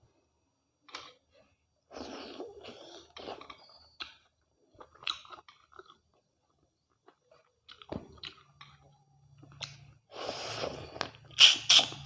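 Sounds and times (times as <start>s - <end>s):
close eating mouth noises: 9.6s - 12.0s.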